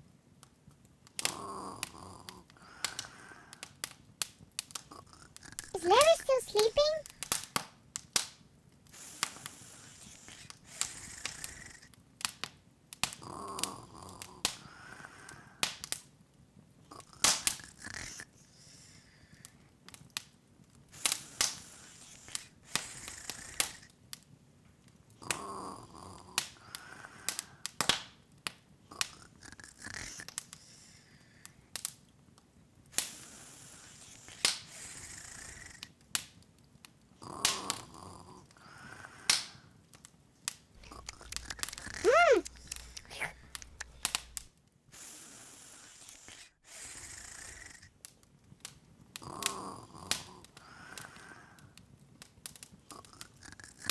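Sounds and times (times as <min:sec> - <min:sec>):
flame hissing: 0:40.8 - 0:44.5
wood fire crackling: 0:40.8 - 0:44.5.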